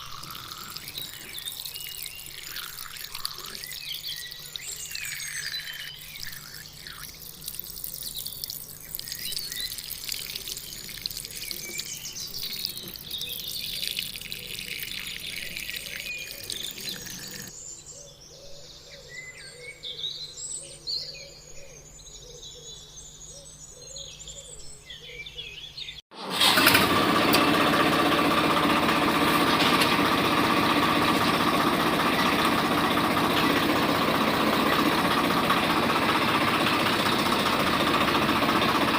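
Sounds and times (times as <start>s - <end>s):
small electric motor whining: 0.0s - 9.2s
birds chirping: 0.0s - 26.6s, 27.7s - 38.9s.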